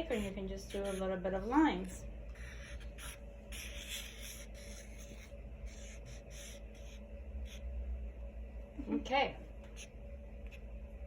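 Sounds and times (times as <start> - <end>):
marker scratching on paper: 0.0 - 7.6.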